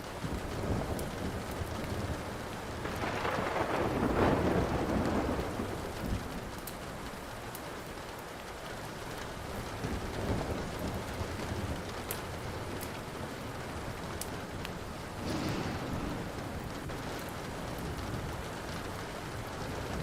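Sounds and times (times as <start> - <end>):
steady rain: 0.0 - 20.0
rolling thunder: 0.2 - 6.6, 9.8 - 20.0
wood fire crackling pops: 10.6 - 20.0.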